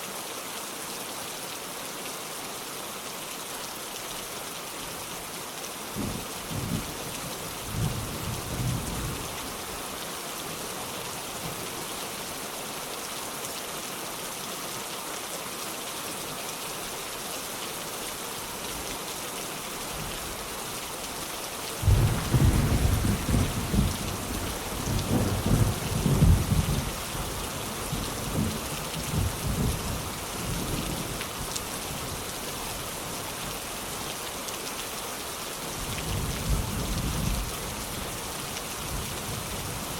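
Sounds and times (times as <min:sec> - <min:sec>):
steady rain: 0:00.0 - 0:39.9
rolling thunder: 0:21.8 - 0:27.0.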